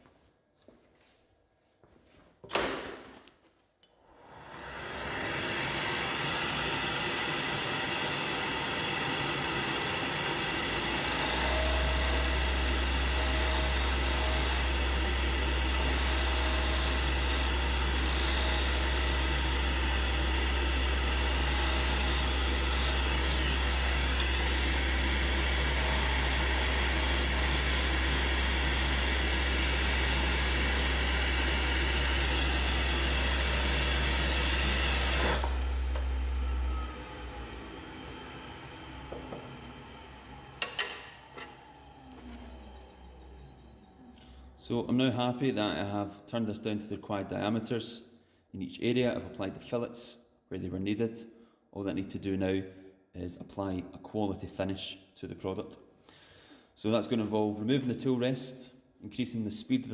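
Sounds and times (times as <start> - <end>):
wood lathe running: 4.2 - 44.6
chisel cutting spinning wood: 4.3 - 43.8.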